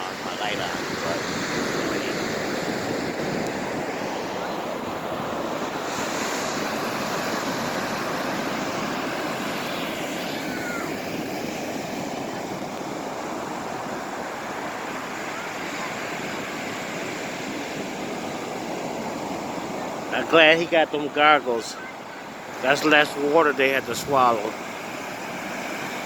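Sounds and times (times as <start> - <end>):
ocean waves breaking on beach: 0.0 - 26.0.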